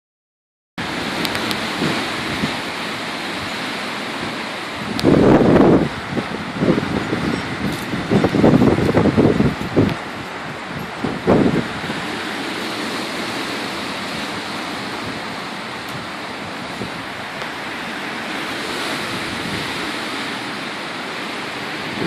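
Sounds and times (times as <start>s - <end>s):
strong wind blowing: 0.8s - 22.0s
wind buffeting microphone: 0.8s - 22.0s.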